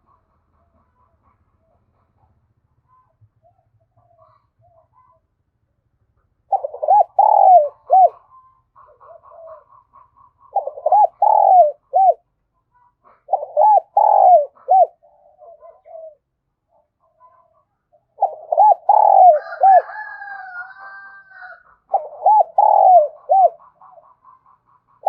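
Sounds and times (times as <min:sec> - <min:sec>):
doves cooing: 0:06.5 - 0:12.2, 0:13.0 - 0:25.0.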